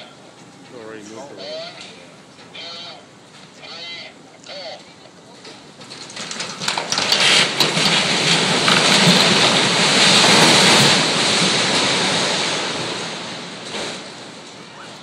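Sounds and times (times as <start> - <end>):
sharp cracks and knocks: 5.4 - 14.6
crashing rumble of falling debris: 5.4 - 15.0.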